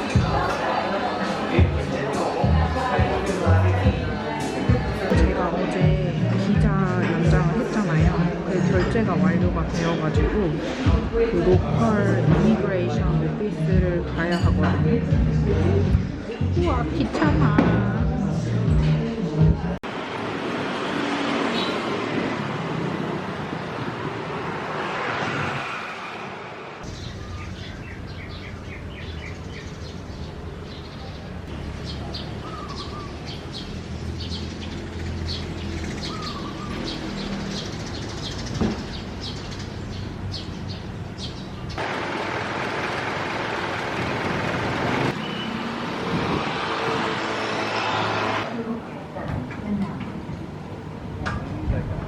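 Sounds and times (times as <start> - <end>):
broad rushing noise: 19.8 - 28.2, 41.8 - 48.7
birds chirping: 21.5 - 22.1, 26.8 - 42.0, 45.0 - 45.7.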